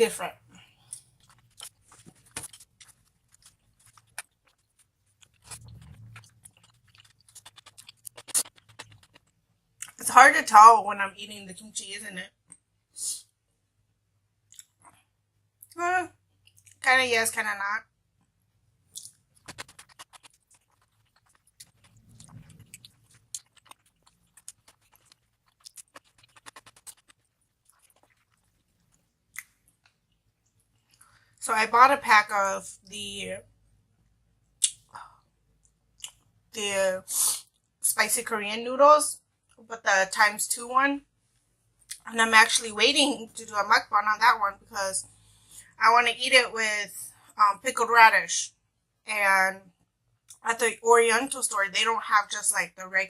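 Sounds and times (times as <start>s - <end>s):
person chewing crunchy food: 0.8s - 10.0s, 19.0s - 29.9s.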